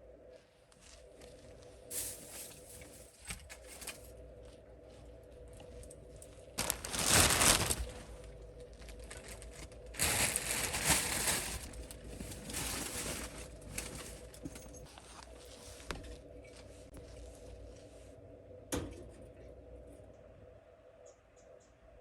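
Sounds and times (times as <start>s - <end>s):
faint steady hum: 0.0s - 22.0s
rustling and crinkling: 0.7s - 18.2s.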